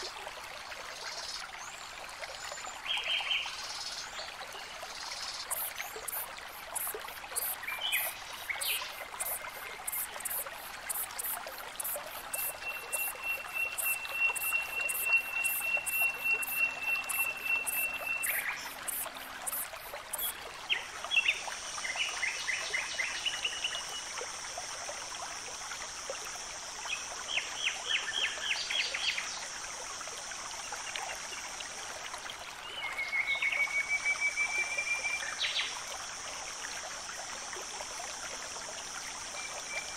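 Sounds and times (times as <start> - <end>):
insect buzz: 4.9 - 20.4
insect pulsing: 5.0 - 20.4
birds chirping trills: 5.5 - 20.3
bird whistle: 12.3 - 18.4.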